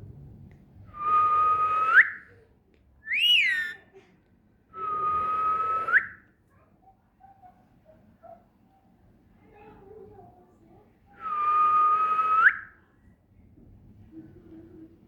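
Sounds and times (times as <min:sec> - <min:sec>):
parrot rising and falling call: 0:03.1 - 0:03.8
parrot whistling: 0:03.1 - 0:03.8.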